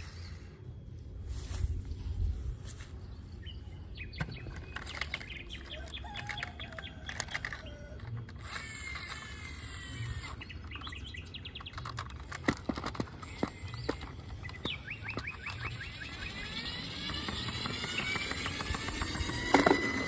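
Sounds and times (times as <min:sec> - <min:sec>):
birds chirping: 0:00.0 - 0:20.0
low steady hum: 0:00.0 - 0:20.0.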